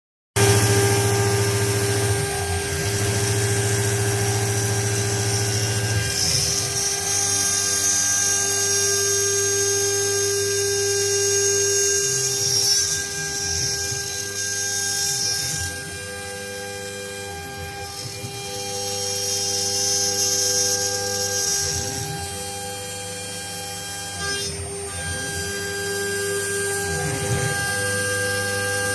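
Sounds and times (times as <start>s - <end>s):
machine spindle whine: 0.4s - 28.9s.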